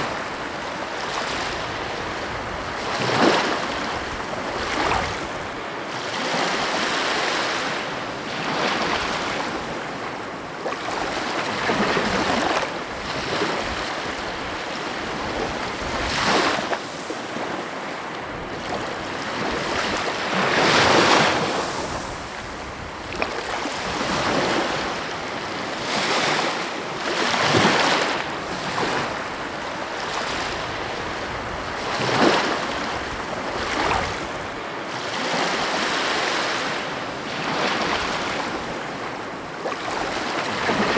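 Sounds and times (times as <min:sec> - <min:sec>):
sea waves breaking on shore: 0:00.0 - 0:40.9.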